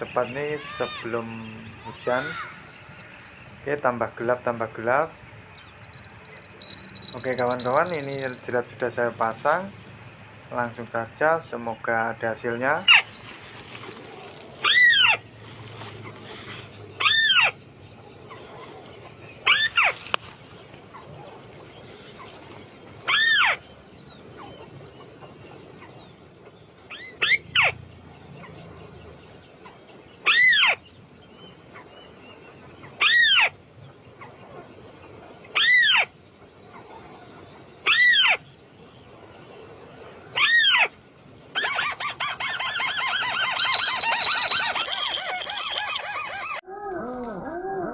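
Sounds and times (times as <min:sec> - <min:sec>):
crake nasal call: 0:00.0 - 0:09.8, 0:41.6 - 0:46.6
fast chattering: 0:00.0 - 0:09.8, 0:42.4 - 0:46.2.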